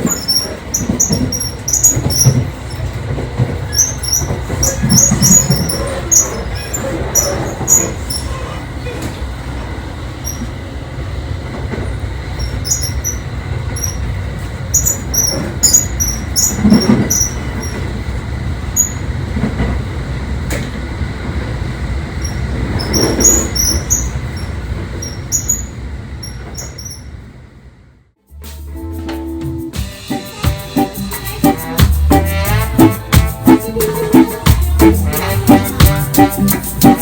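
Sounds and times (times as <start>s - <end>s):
short high squeaks and ticks: 0.0s - 2.8s
train wheels rumbling on track: 0.0s - 28.0s, 29.6s - 37.0s.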